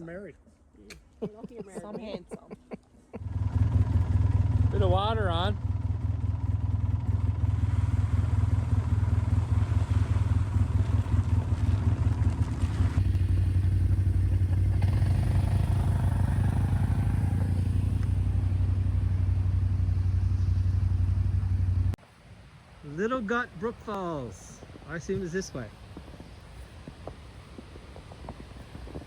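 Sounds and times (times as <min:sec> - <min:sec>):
quad bike engine drone: 0:03.2 - 0:22.0.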